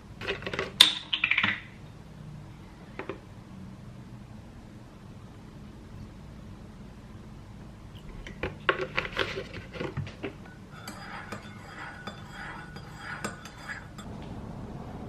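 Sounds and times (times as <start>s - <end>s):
cutlery and dishes clinking: 8.2s - 14.1s
cutlery scraping: 8.4s - 14.1s.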